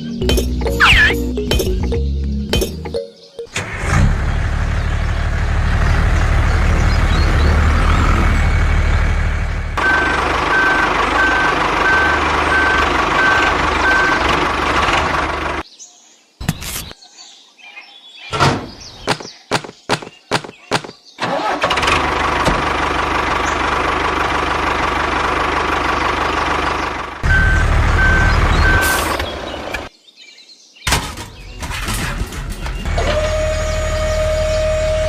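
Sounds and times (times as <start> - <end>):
reversing beeper: 0.8 - 1.2, 9.8 - 14.3, 27.2 - 29.2
truck engine running: 3.5 - 15.6, 21.3 - 29.9
sharp knocks: 18.4 - 21.0.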